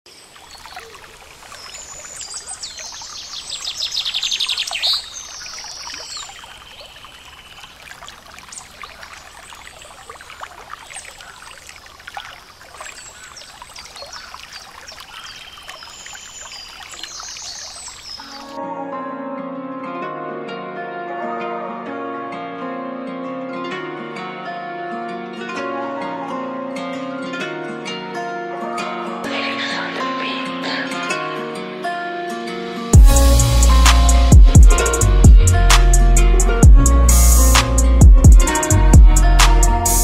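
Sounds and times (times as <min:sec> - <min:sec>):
songbirds singing: 0:00.1 - 0:18.6.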